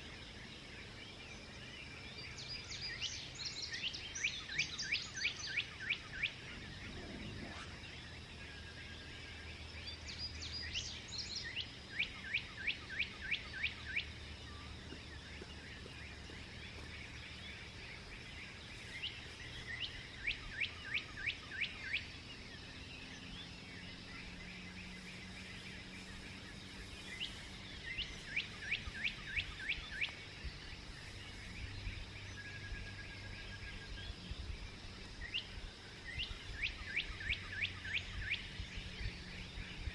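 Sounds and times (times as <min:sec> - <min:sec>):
birds chirping faintly: 0:00.0 - 0:39.9
songbird singing: 0:00.0 - 0:39.9
low rumble: 0:06.4 - 0:08.1.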